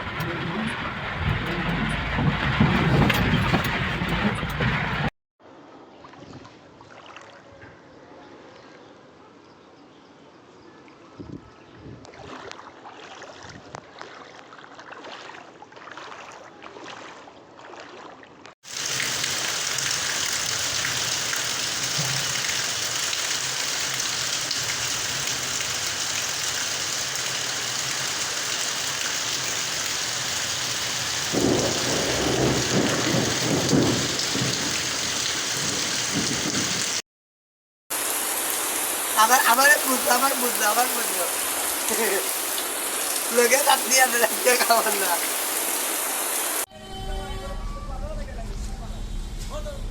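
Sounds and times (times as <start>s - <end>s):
small water splashes: 5.7s - 7.9s, 10.8s - 36.9s, 37.9s - 46.7s
heavy rain hiss: 18.7s - 37.0s, 37.9s - 46.7s.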